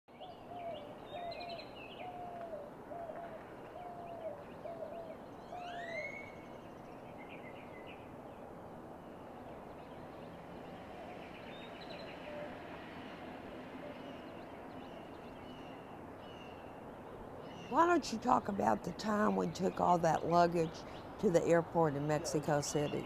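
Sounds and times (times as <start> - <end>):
low bird call: 0.1 - 8.0, 10.9 - 12.9
steady background hiss: 0.1 - 23.0.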